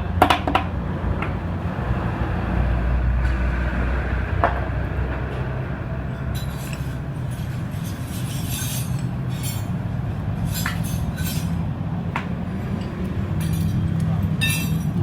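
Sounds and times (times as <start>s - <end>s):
metal tools clinking: 6.1s - 11.7s, 12.5s - 15.0s.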